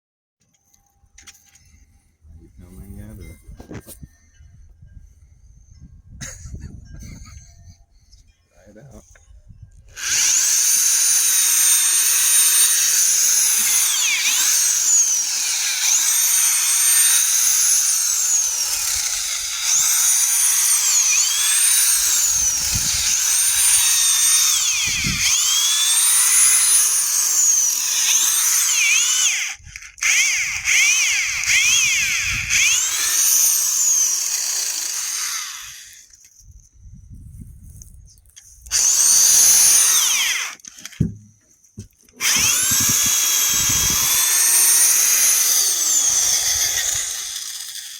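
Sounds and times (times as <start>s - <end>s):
hammer drill motor whine: 9.7s - 36.1s, 38.7s - 41.0s, 42.2s - 47.9s.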